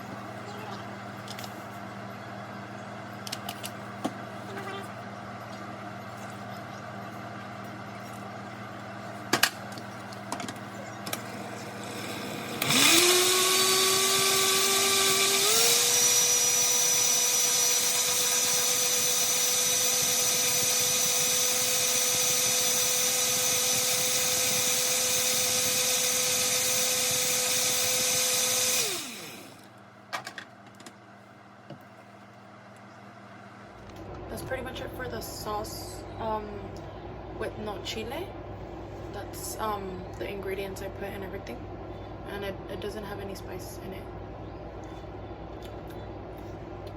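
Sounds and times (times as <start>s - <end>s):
blender motor whine: 11.0s - 29.7s.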